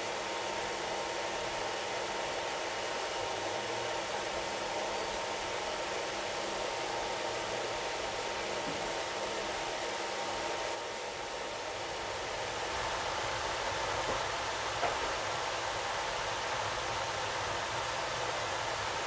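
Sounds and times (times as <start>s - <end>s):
air conditioning rushing: 0.0s - 19.0s
train running noise: 12.6s - 16.1s.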